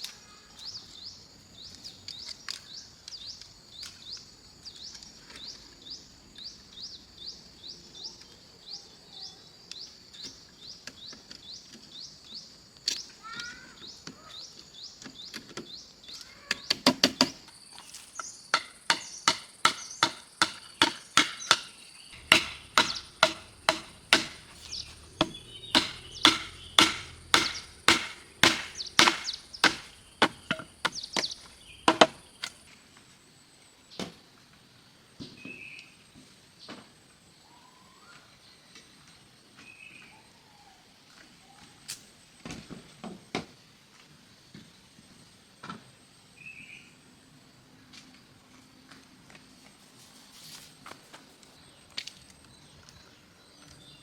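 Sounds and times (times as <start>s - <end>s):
chopping strikes on wood: 18.5s - 32.5s.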